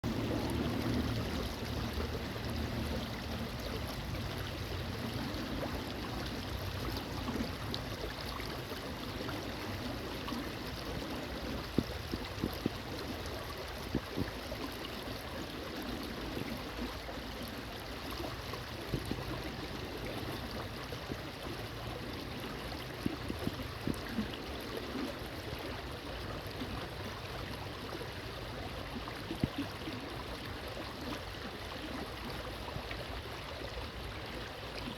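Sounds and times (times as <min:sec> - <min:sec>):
stream water flowing: 0:00.0 - 0:34.9.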